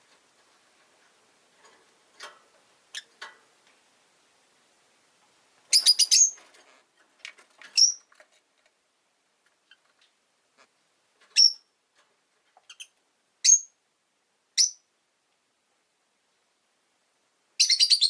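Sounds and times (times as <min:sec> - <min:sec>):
lovebirds chirping: 0:05.7 - 0:06.4, 0:07.7 - 0:08.1, 0:11.3 - 0:11.7, 0:12.7 - 0:13.8, 0:14.6 - 0:14.9, 0:17.6 - 0:18.0.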